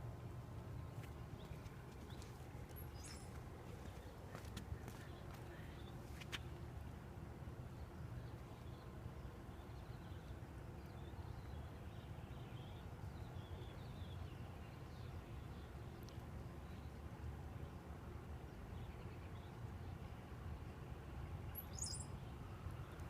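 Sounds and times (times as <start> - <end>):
faint bird chirps: 21.5 - 22.2.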